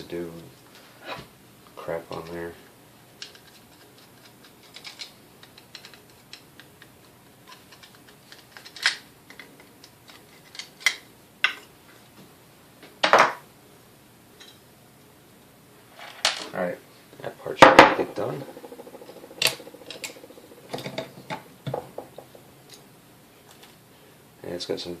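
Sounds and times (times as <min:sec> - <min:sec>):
small metal parts clicking and clattering: 0:03.2 - 0:06.7, 0:07.4 - 0:09.5, 0:18.2 - 0:21.4.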